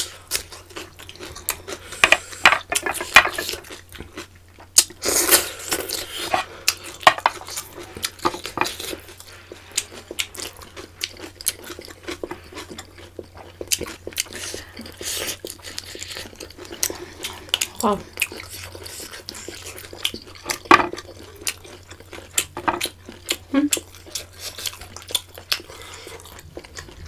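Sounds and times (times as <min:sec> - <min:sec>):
chewing: 0:00.0 - 0:27.0.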